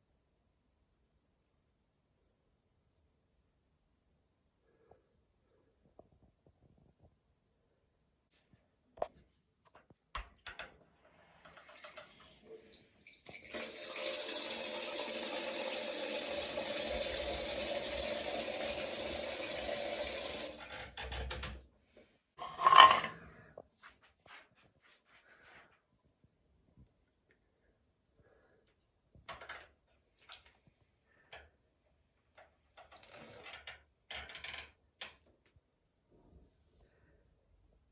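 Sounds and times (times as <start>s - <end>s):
water running from shower tap: 11.4s - 20.6s, 32.8s - 33.6s.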